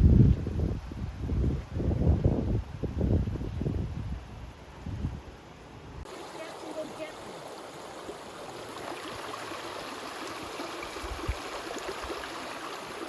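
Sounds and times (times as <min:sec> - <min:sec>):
stream of water running: 0:06.0 - 0:13.0.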